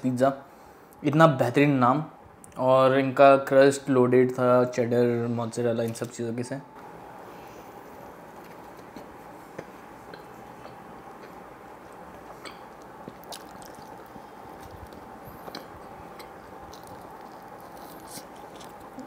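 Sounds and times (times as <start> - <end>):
faint steady hum: 0.0 - 19.0
close-up chewing: 7.9 - 19.0
sharp mouth clicks: 12.4 - 14.2.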